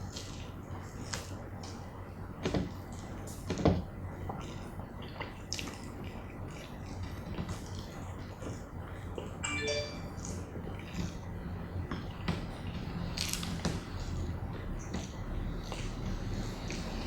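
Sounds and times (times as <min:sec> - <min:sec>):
wet chewing and mouth smacking: 0:04.3 - 0:08.5.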